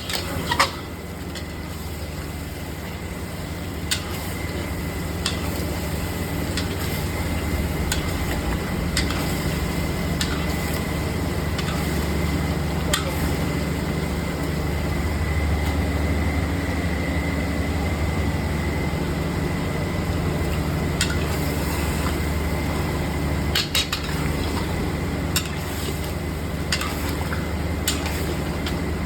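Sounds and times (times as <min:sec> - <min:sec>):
steady low rumble: 0:06.8 - 0:16.8.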